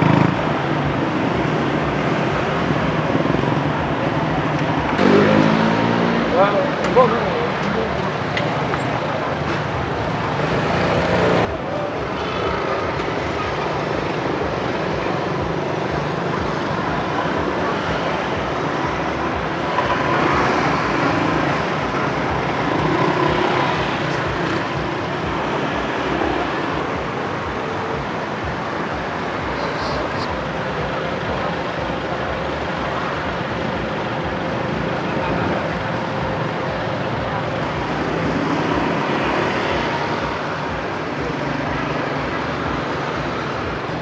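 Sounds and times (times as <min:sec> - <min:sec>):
street traffic: 0:00.0 - 0:44.0
vehicles passing: 0:00.0 - 0:44.0.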